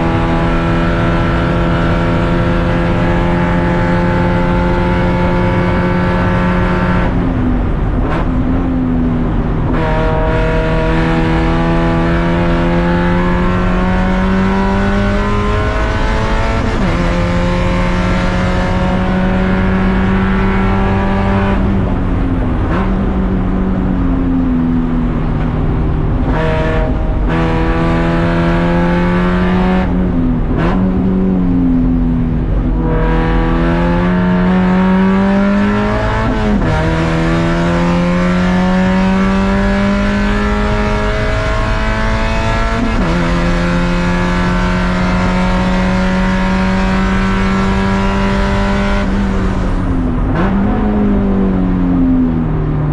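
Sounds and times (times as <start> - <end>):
race car engine revving: 0.0 - 52.9
road and tyre noise: 0.0 - 52.9.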